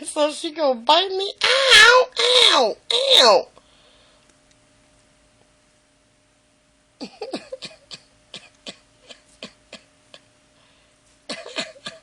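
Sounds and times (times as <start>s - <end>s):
woman laughing: 7.0s - 10.3s, 11.3s - 12.0s.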